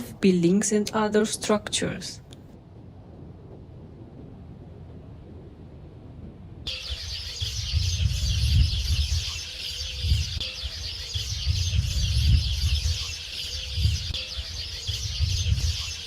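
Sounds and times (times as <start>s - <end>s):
wind rumble on microphone: 0.0s - 16.0s
high-pitched bird calls: 6.7s - 16.0s.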